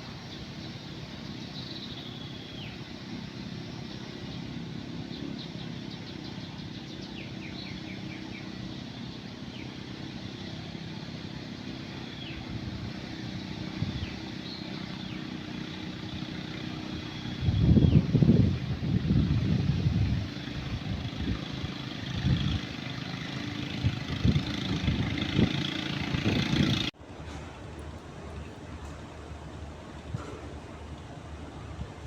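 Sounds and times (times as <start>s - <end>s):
engine droning: 0.0s - 32.0s
birds calling: 0.1s - 19.1s.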